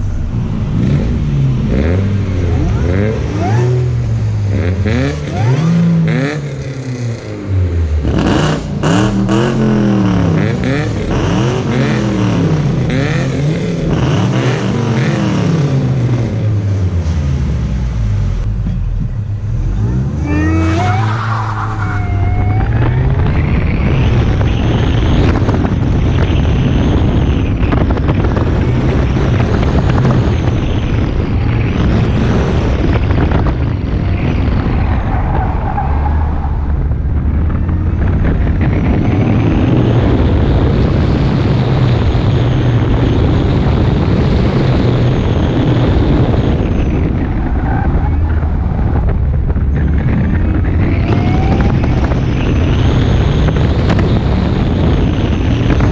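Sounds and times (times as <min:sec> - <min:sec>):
loud steady rush of noise: 0:00.0 - 0:06.6
car engine revving: 0:00.0 - 0:55.9.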